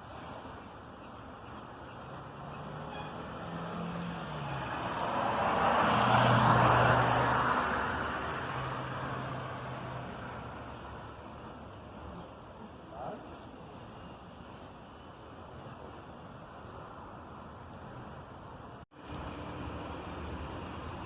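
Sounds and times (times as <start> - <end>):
vehicle driving past: 2.0 - 10.8.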